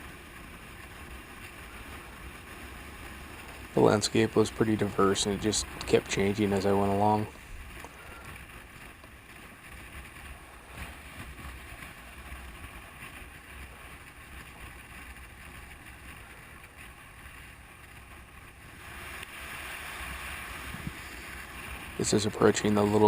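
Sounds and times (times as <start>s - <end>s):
wind over microphone: 20.0s - 23.0s.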